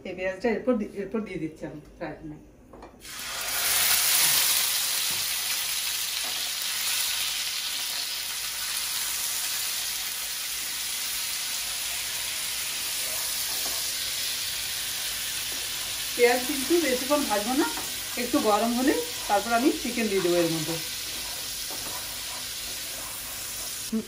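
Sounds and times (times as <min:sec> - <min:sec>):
paste sizzling in hot oil: 0:03.0 - 0:24.0
wooden spatula stirring: 0:16.6 - 0:23.9.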